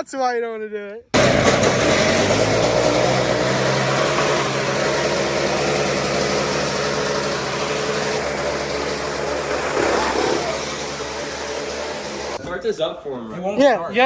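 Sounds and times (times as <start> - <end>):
pickup truck engine idling: 1.2 - 12.4.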